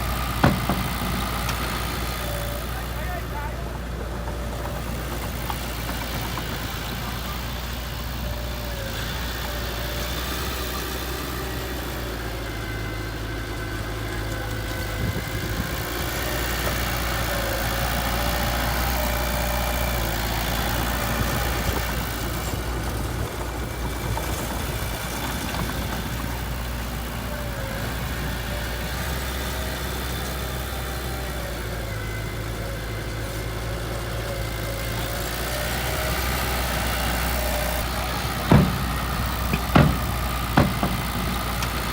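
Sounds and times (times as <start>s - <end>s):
heavy machine engine running: 0.0s - 41.9s.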